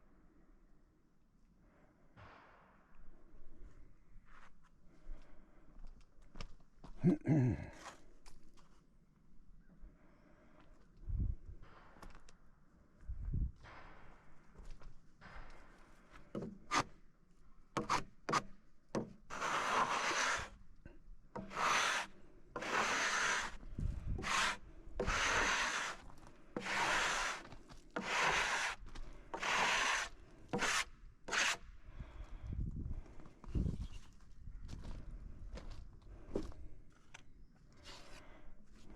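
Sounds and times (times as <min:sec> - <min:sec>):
rasping scraping strokes on wood: 0:16.4 - 0:16.9, 0:17.8 - 0:20.6, 0:21.4 - 0:31.6.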